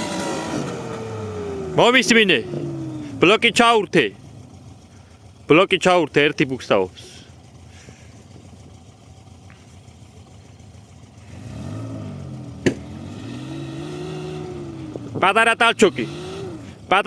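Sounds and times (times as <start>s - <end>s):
vehicle engine revving: 0.0s - 17.0s
sharp click or knock: 12.6s - 12.9s.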